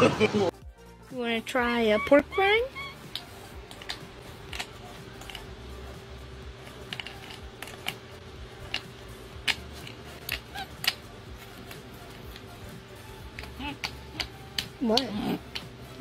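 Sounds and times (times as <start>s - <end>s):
faint steady hum: 2.4s - 16.0s.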